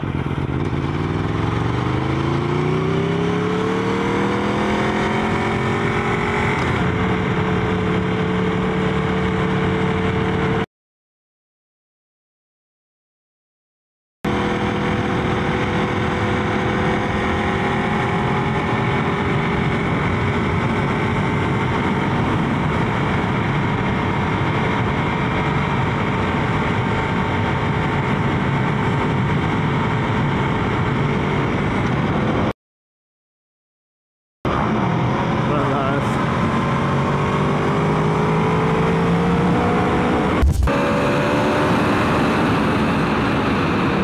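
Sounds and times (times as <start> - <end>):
motorcycle engine cruising: 0.0 - 10.6, 14.3 - 32.5, 34.5 - 44.0
wind rush on microphone: 14.5 - 32.5.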